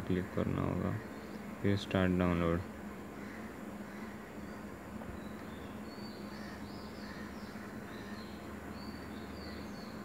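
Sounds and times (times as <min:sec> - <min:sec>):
background hiss: 0:00.0 - 0:10.0
steady low hum: 0:00.0 - 0:10.0
faint high bird chirps: 0:03.2 - 0:10.0.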